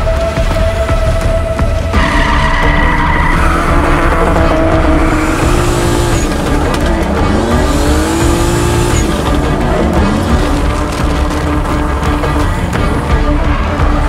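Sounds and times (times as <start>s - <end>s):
car engine revving: 1.8s - 14.0s
tyres squealing: 1.9s - 13.2s.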